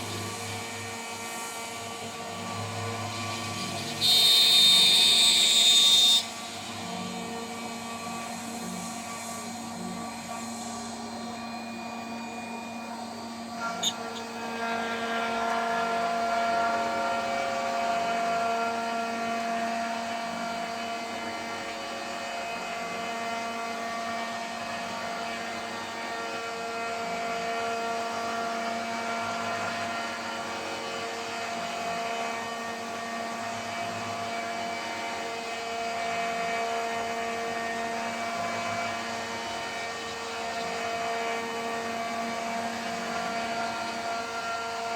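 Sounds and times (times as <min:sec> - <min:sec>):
router spindle whining: 0:00.0 - 0:19.4.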